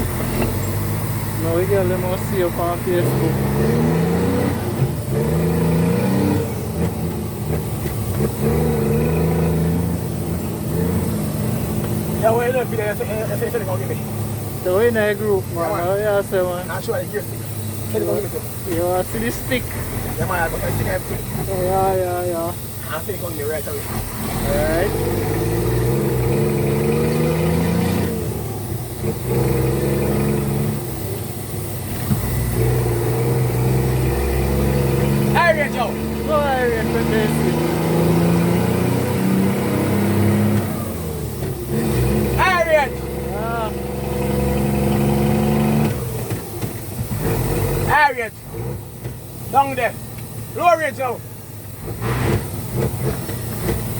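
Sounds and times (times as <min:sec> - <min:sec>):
truck diesel engine accelerating: 0:00.0 - 0:53.9.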